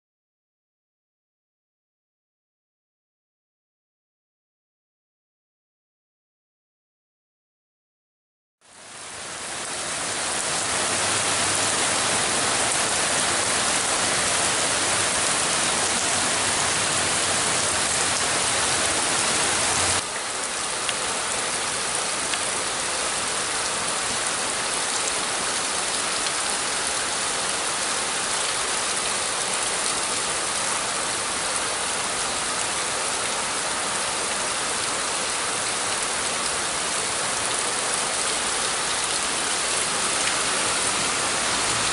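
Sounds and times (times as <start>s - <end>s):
heavy rain pouring: 8.6s - 41.9s.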